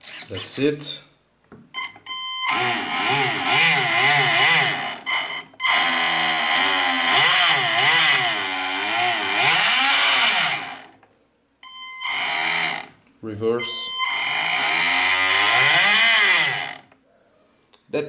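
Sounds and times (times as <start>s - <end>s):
electric motor and propeller whining: 2.5s - 10.9s, 12.0s - 12.9s, 14.0s - 16.9s.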